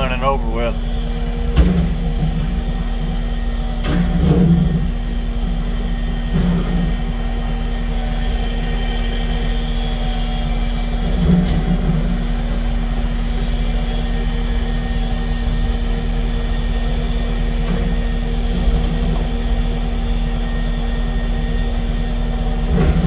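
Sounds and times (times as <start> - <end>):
diesel engine humming: 0.0 - 3.0.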